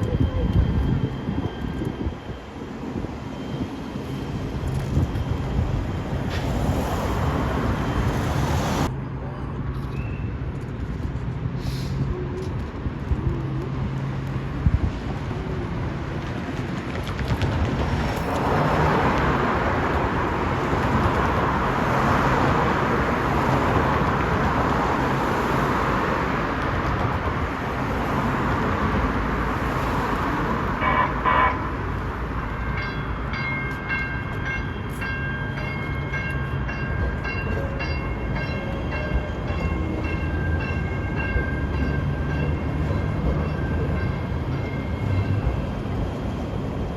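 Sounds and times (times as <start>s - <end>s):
train rumbling past: 0.0s - 46.9s
train horn: 30.8s - 31.7s.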